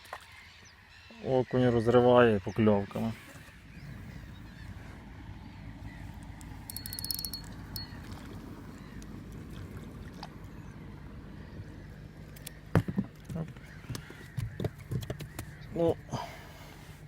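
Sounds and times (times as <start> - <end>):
wind and water rumble: 0.0 - 17.0
scattered ticks: 6.3 - 7.9.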